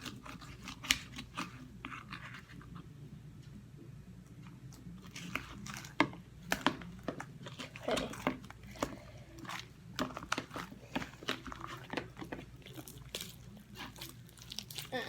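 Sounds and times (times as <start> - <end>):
slime squelching: 0.0 - 2.9, 4.7 - 15.0
slime crackling: 7.4 - 15.0.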